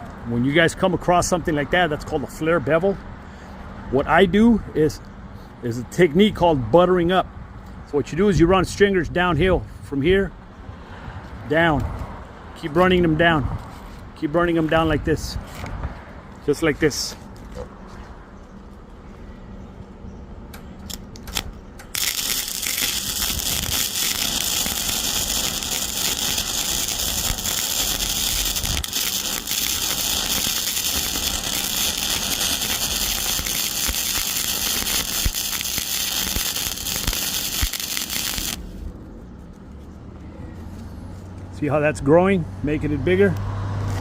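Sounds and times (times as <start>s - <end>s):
arc welding crackle: 20.9s - 38.8s.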